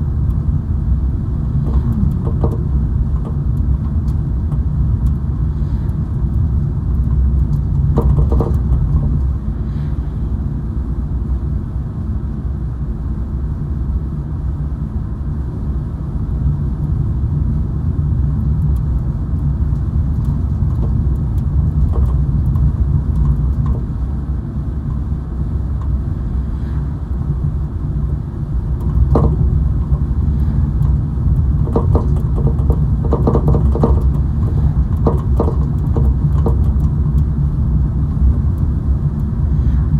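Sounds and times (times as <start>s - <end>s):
car road and engine rumble: 0.0s - 39.9s
brief knocks and rattles: 1.6s - 4.0s, 7.9s - 9.3s, 28.8s - 31.0s, 31.6s - 37.0s.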